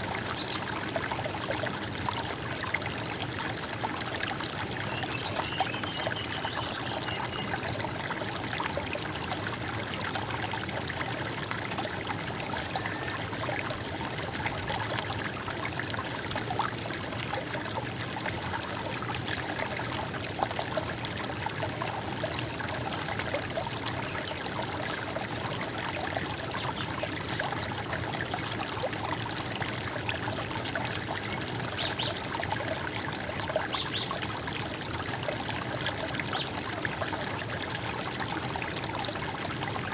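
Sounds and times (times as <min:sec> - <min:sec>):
running water flowing: 0:00.0 - 0:39.9.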